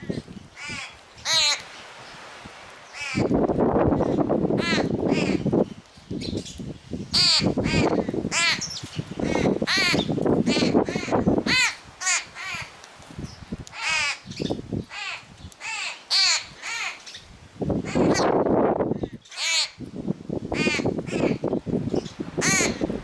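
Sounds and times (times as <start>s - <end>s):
birds cawing: 0.6s - 1.6s, 2.9s - 3.3s, 4.0s - 5.5s, 7.1s - 12.8s, 13.8s - 17.2s, 17.8s - 19.8s, 20.6s - 21.5s, 22.4s - 22.9s
young bird crying: 0.6s - 1.6s, 4.6s - 5.4s, 7.1s - 12.7s, 13.8s - 17.2s, 17.8s - 18.3s, 19.2s - 19.8s.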